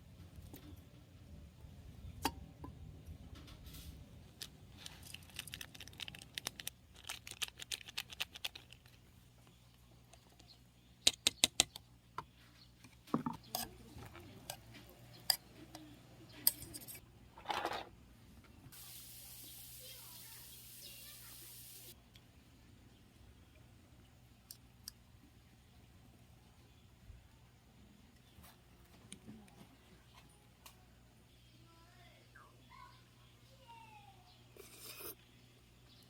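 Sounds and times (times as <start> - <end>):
small hard objects clicking and clattering: 4.3 - 9.0.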